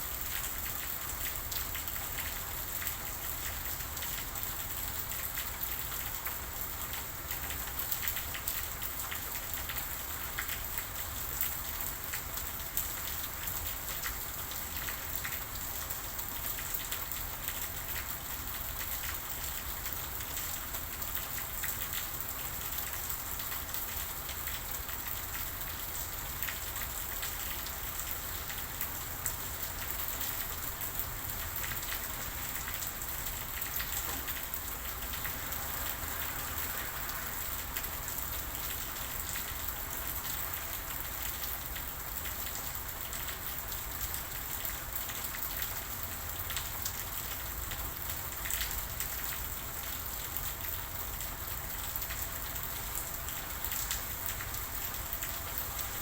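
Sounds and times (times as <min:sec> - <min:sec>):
steady rain pattering: 0:00.0 - 0:56.0.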